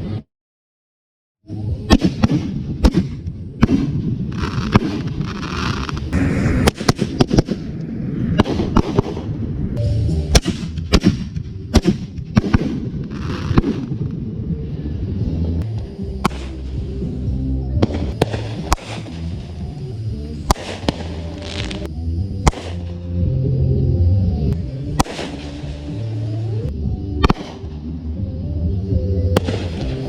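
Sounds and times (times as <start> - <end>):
fireworks banging: 1.9 - 9.6, 10.3 - 14.2, 16.2 - 17.0, 17.8 - 19.6, 20.4 - 23.0, 24.9 - 26.1
fireworks hissing and crackling: 2.2 - 9.4, 10.4 - 14.8, 15.4 - 23.0, 24.9 - 26.6.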